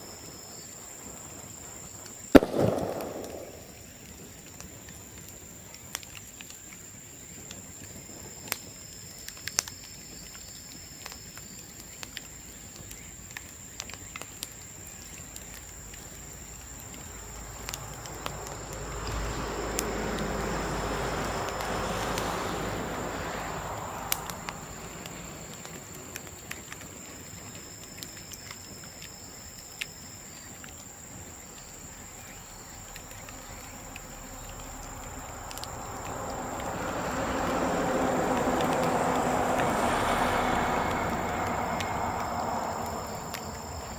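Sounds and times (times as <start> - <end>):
bamboo bonfire crackling: 0.0 - 43.9
low rushing sound: 2.4 - 3.9.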